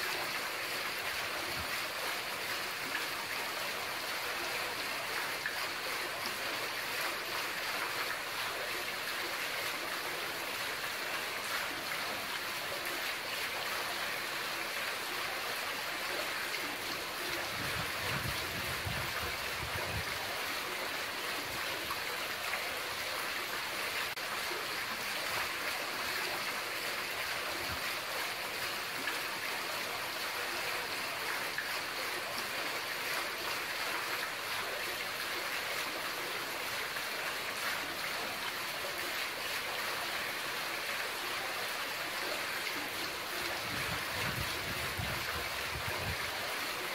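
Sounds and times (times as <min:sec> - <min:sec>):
fountain water splashing: 0:00.0 - 0:46.9.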